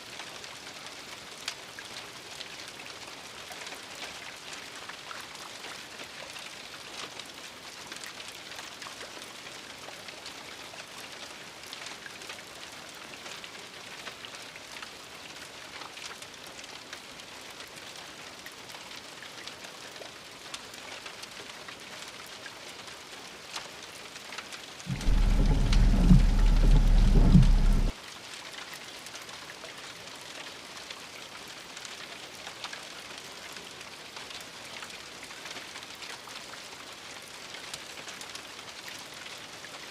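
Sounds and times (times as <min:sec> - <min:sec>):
light rain pattering: 0:00.0 - 0:39.9
loud deep rumble: 0:24.9 - 0:27.9.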